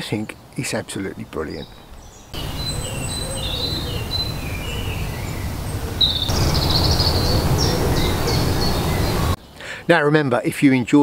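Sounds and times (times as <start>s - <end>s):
songbirds chirping and singing: 0.0s - 10.0s.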